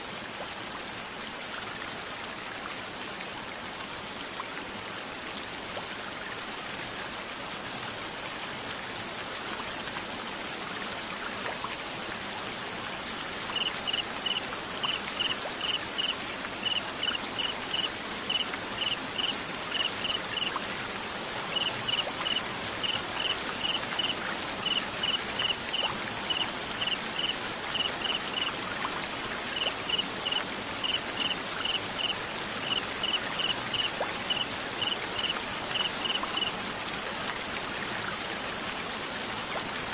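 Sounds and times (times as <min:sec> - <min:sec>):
hiss of rain or running water: 0:00.0 - 0:39.9
cricket chirping: 0:13.5 - 0:20.5, 0:21.5 - 0:28.5, 0:29.5 - 0:36.5.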